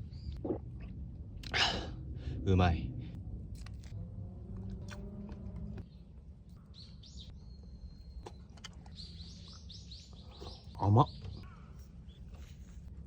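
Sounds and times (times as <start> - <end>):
low rumble: 0.0 - 5.8
birds chirping: 6.7 - 12.2.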